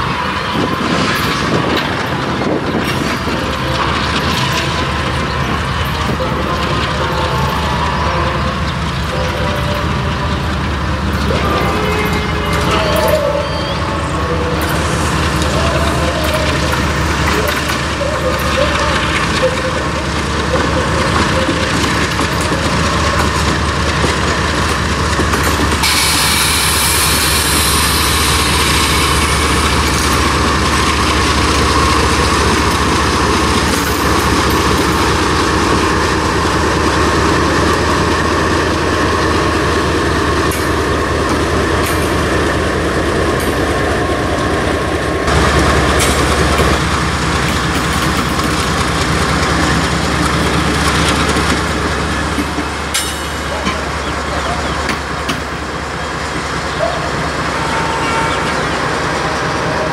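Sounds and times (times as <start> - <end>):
freight train wheels clattering: 0.0 - 59.9
high hiss or squeal: 25.8 - 29.6.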